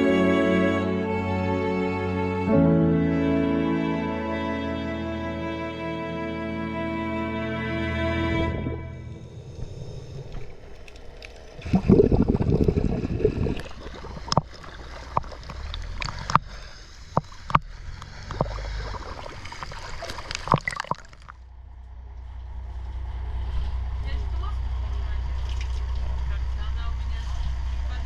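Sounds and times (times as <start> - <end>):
low steady rumble: 0.0 - 28.0
water gurgling and sloshing: 8.3 - 28.0
bubbling rush: 8.5 - 21.4.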